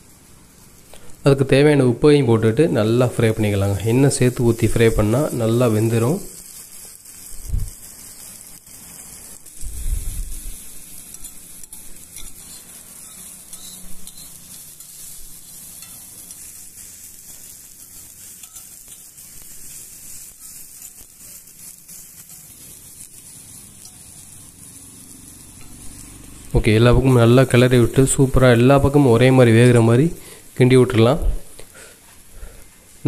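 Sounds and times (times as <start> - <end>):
plantain sizzling in oil: 0.0 - 33.0
spatula scraping griddle: 3.2 - 26.1.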